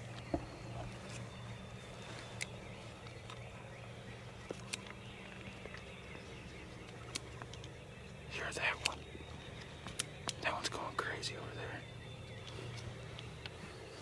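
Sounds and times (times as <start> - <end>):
rustles: 0.0 - 3.7
distant bird calls: 0.0 - 14.0.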